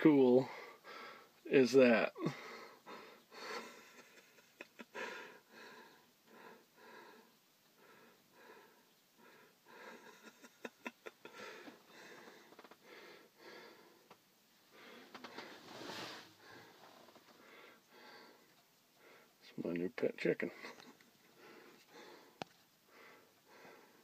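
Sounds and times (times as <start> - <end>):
soft breathing puffs: 4.9 - 10.5, 11.1 - 19.4, 20.4 - 24.0.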